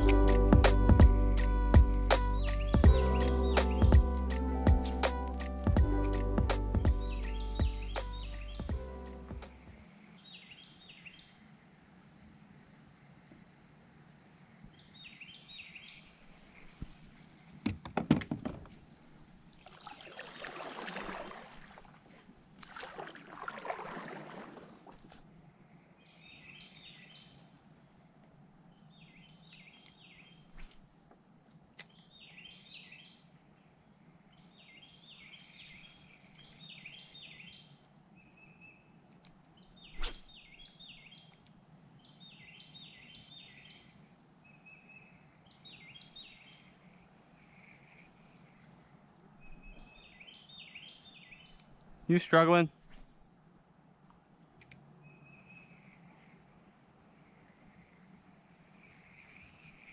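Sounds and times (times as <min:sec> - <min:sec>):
bird chirping: 0:02.3 - 0:05.1, 0:06.8 - 0:11.5, 0:14.7 - 0:16.8, 0:26.0 - 0:27.5, 0:28.7 - 0:30.7, 0:31.8 - 0:33.4, 0:34.3 - 0:48.6, 0:49.3 - 0:52.4, 0:55.0 - 0:56.3.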